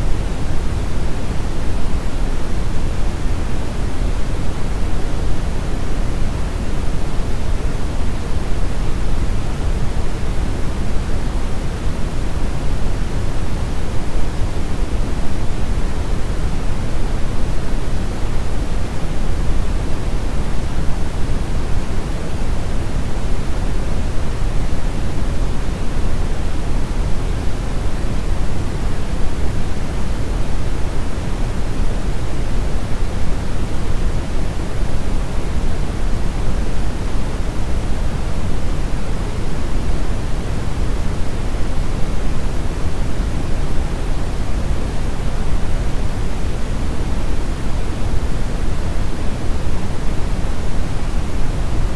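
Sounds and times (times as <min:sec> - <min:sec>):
brown noise hiss: 0:00.0 - 0:51.9.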